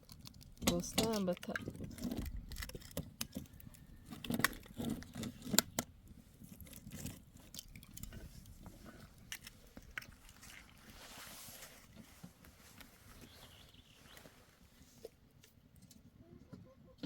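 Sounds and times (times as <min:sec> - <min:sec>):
objects clicking and knocking: 0:00.0 - 0:10.2.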